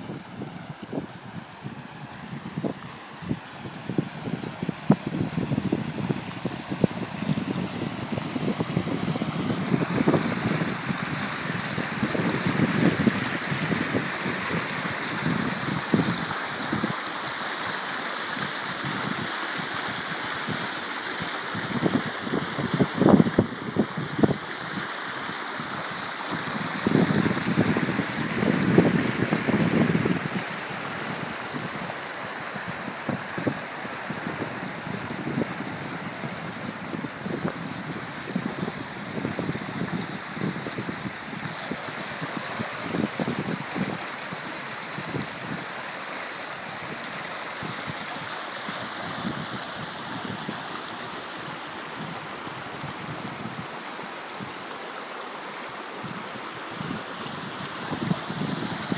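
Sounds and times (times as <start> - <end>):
running rainwater: 0.0 - 58.9.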